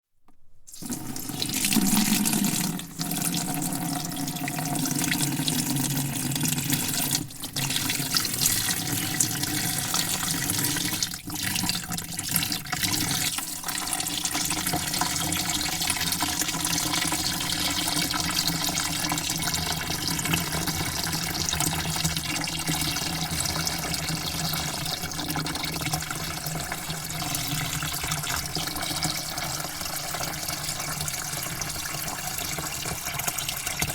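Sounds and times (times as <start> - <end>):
water spraying into a bucket: 0.7 - 33.9.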